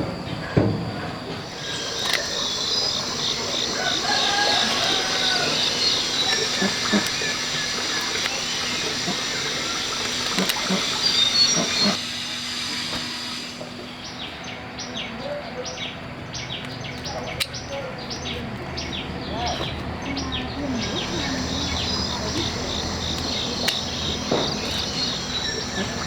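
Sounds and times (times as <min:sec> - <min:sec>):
bird calls: 0:00.0 - 0:26.0
rushing water hiss: 0:01.4 - 0:13.8, 0:20.8 - 0:26.0.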